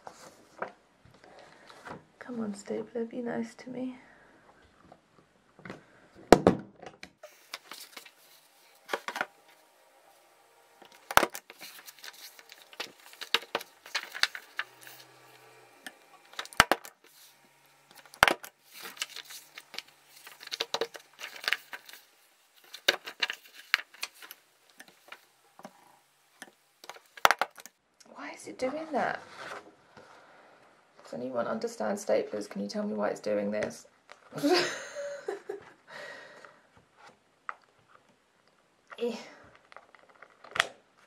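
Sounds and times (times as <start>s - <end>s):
paper pages rustling: 7.2s - 25.9s, 26.8s - 27.8s, 29.2s - 30.3s, 39.5s - 41.0s.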